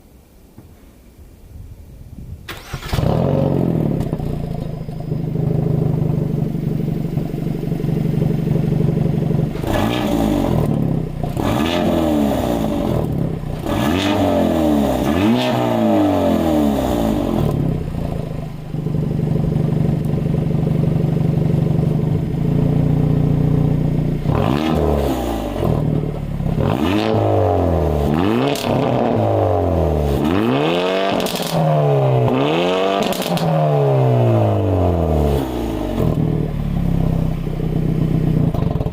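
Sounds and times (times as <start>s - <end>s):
car engine revving: 2.5s - 20.3s, 22.6s - 38.9s
car engine idling: 2.6s - 11.6s, 17.1s - 24.7s, 35.7s - 38.9s.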